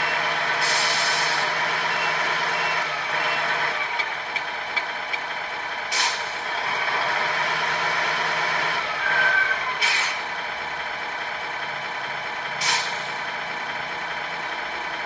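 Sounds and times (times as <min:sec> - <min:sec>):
toy truck engine idling: 0:00.0 - 0:15.0
air brake hiss: 0:00.6 - 0:01.4, 0:05.9 - 0:06.3, 0:12.6 - 0:13.2.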